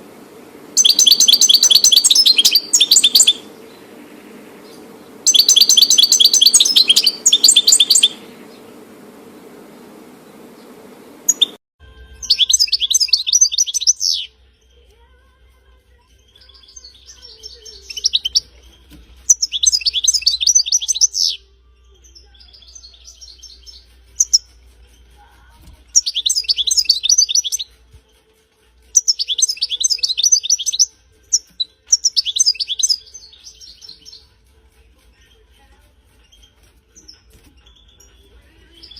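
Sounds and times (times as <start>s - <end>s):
steady low hum: 0.0s - 11.6s
finch twittering song: 0.8s - 8.8s, 10.6s - 14.9s, 16.1s - 28.2s, 28.9s - 34.4s, 35.0s - 38.9s.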